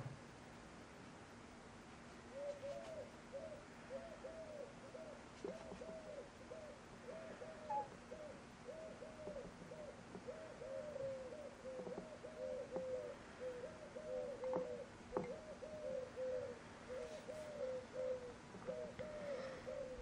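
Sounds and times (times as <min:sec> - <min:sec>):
bird cooing: 0:02.3 - 0:20.0.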